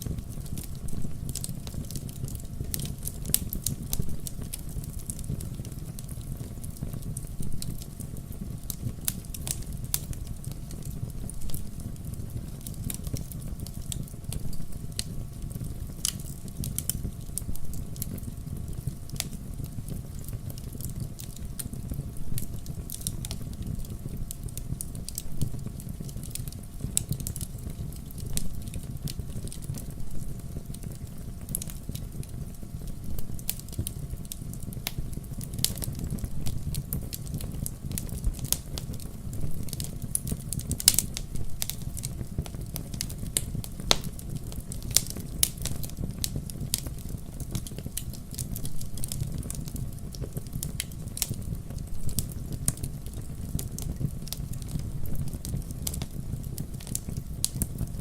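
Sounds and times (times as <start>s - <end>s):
low rumble of burning: 0.0s - 58.0s
wood fire crackling: 0.0s - 58.0s
sharp pops and snaps: 39.7s - 57.9s.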